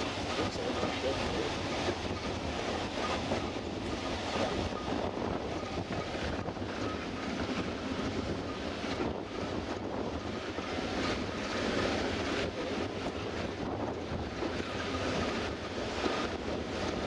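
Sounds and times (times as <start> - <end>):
wagon wheels running on rails: 0.0 - 17.0
wind buffeting microphone: 0.0 - 17.0.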